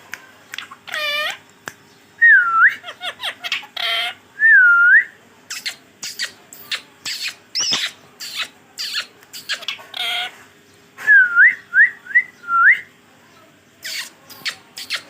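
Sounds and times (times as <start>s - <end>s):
parakeet chattering calls: 0.5s - 1.6s, 2.7s - 4.2s, 5.5s - 10.4s, 13.8s - 15.0s
parakeet squawk: 0.6s - 1.4s, 2.8s - 4.2s, 5.5s - 10.3s.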